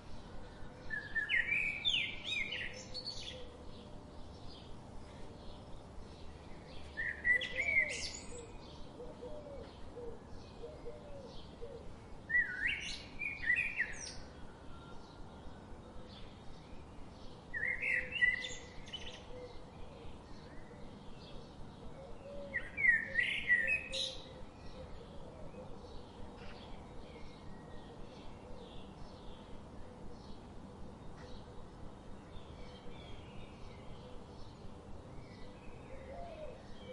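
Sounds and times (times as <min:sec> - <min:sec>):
faint birds chirping: 0:00.0 - 0:36.9
songbird singing: 0:00.0 - 0:36.9.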